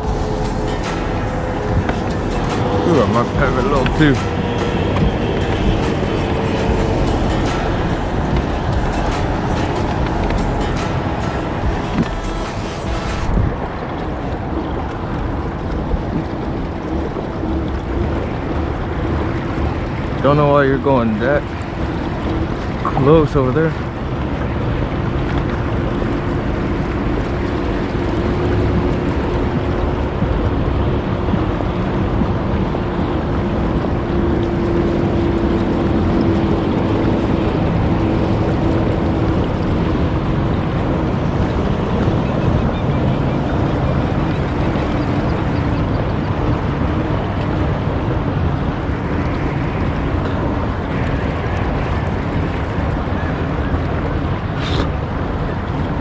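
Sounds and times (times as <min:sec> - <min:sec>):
motorboat engine hum: 0:00.0 - 0:56.0
water on open water: 0:00.0 - 0:56.0
wind: 0:00.0 - 0:56.0.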